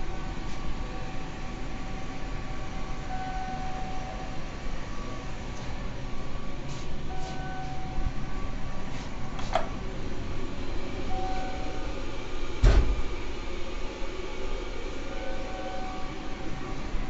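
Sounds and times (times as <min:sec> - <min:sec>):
faint humming tones: 0:00.0 - 0:17.0
train interior hum and hiss: 0:00.0 - 0:17.0
loud thud: 0:12.6 - 0:13.1.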